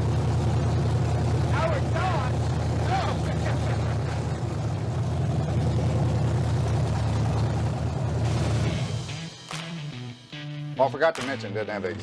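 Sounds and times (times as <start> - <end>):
car engine idling: 0.0 - 10.6
man talking: 1.5 - 4.0, 10.8 - 12.0.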